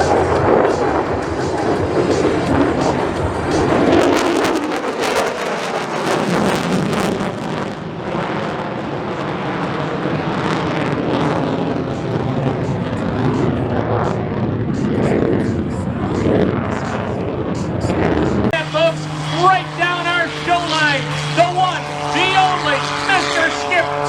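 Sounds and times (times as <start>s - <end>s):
wind buffeting microphone: 0.0s - 22.1s
jet engine roar: 0.0s - 24.0s.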